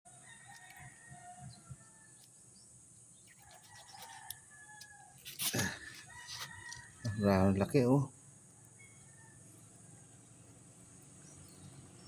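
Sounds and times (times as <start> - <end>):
faint rooster crowing: 0.1 - 2.3, 3.2 - 10.6.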